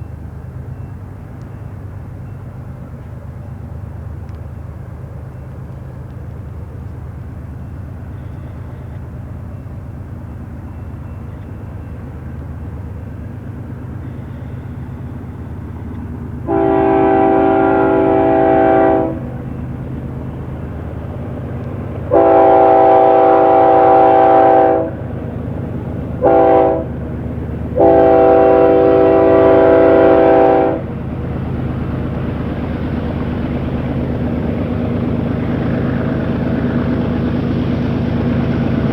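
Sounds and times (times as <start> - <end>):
locomotive rumbling: 0.0 - 38.9
train air horn: 16.4 - 19.4, 22.1 - 25.0, 26.2 - 27.0, 27.8 - 30.9.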